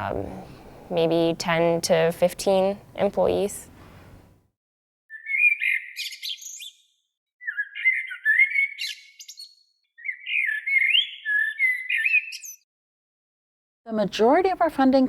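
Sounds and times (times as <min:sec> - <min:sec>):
songbird chirping: 0:05.1 - 0:12.7.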